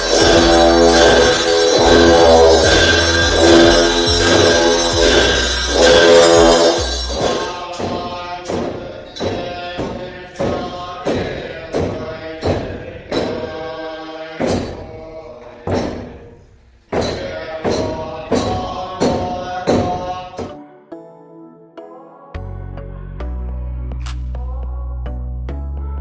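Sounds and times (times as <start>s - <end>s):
struck percussion ringing: 0.0s - 13.5s
monks chanting: 0.0s - 16.3s, 17.0s - 20.6s.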